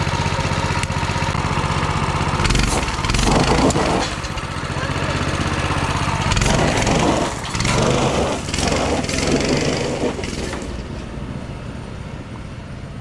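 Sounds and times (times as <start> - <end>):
small engine running under throttle: 0.0 - 11.3
tires throwing gravel: 1.4 - 11.3.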